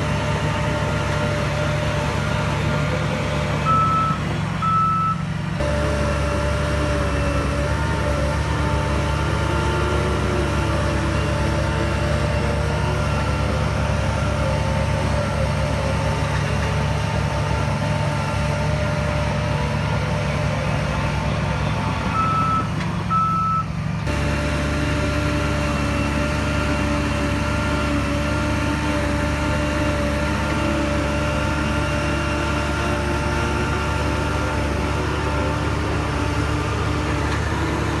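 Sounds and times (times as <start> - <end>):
diesel engine running: 0.0 - 38.0
reversing alarm beeps: 3.7 - 5.2, 22.1 - 23.7.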